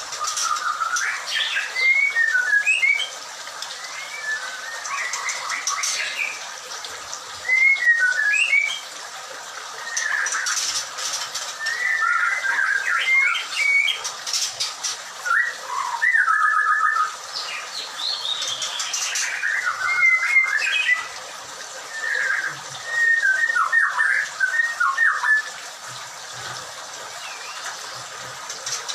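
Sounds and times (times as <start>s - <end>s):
bird singing whistled phrases: 0.2s - 3.1s, 3.8s - 6.2s, 7.4s - 8.8s, 11.6s - 14.0s, 15.2s - 17.2s, 19.1s - 21.1s, 21.9s - 25.5s.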